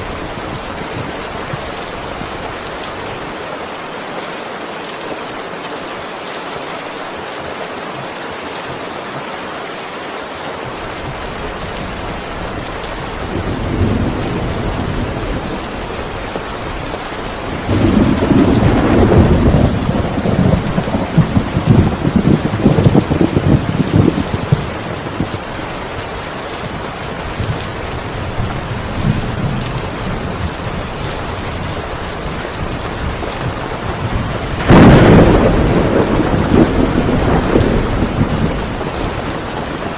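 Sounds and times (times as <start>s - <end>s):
heavy rain falling: 0.0s - 39.9s
rolling thunder: 11.8s - 25.5s, 27.3s - 39.9s.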